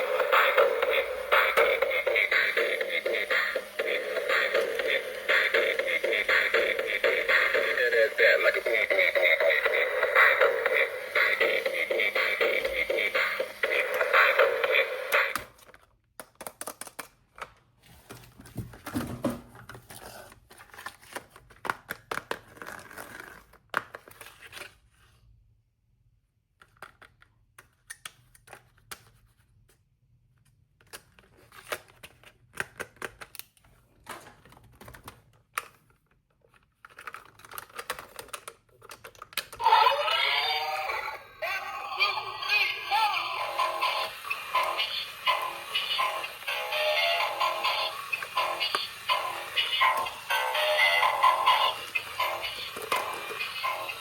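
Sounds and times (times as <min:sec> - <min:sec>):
electronic music with synthetic vocals: 0:00.0 - 0:15.4, 0:39.6 - 0:54.0.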